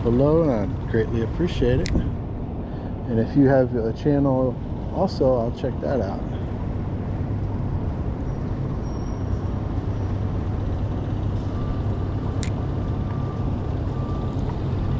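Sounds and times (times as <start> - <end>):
boat motor humming: 0.0 - 14.9
sharp click: 1.8 - 2.1.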